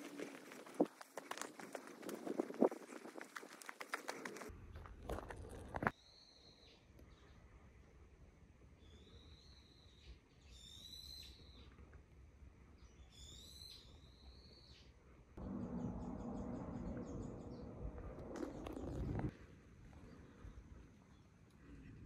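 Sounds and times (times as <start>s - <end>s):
rushing noise with low hum: 15.4s - 19.4s.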